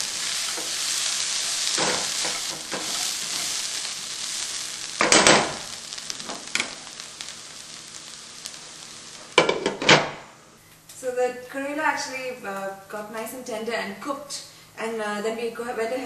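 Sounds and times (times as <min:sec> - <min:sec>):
spatula scraping pan: 0:00.0 - 0:03.9
food sizzling in oil: 0:00.0 - 0:10.5.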